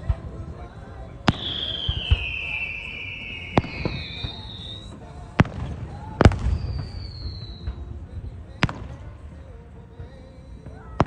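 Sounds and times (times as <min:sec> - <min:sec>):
firework bangs: 0:00.0 - 0:11.0
firework whistles sliding down: 0:01.3 - 0:05.0.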